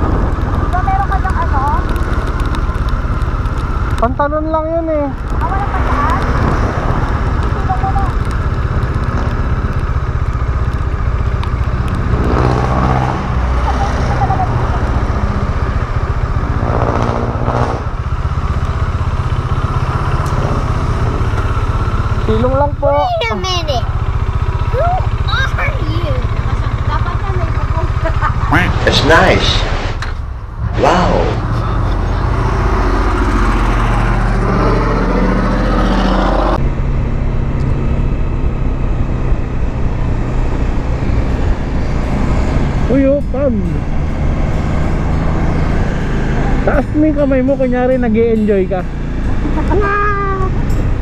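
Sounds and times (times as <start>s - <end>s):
motorcycle engine revving: 0.0s - 51.0s
motorcycle engine exhaust note: 15.1s - 22.8s.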